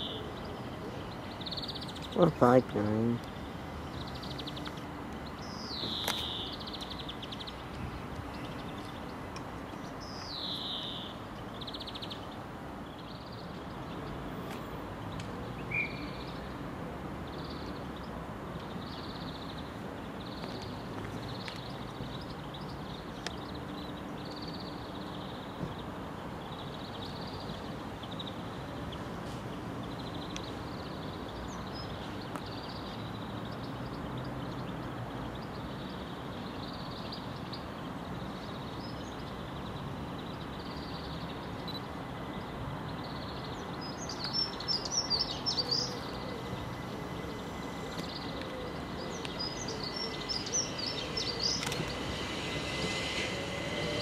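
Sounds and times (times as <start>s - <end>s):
bird chirping: 0.0s - 16.6s, 29.8s - 54.0s
electric train humming: 43.6s - 54.0s.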